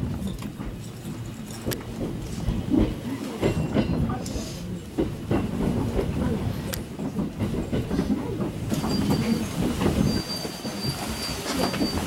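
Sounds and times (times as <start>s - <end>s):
train carriage rumbling: 0.0s - 12.0s
high steady wheel squeal: 8.7s - 12.0s.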